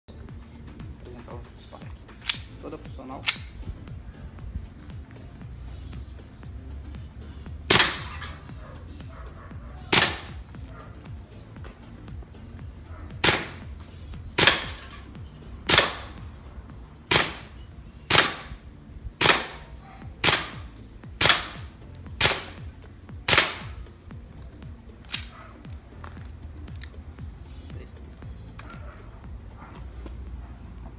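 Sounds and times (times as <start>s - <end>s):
air gun shots: 2.2s - 2.6s, 3.2s - 3.7s, 7.7s - 8.6s, 9.9s - 10.6s, 13.2s - 16.3s, 17.1s - 18.6s, 19.2s - 23.9s, 25.0s - 25.4s.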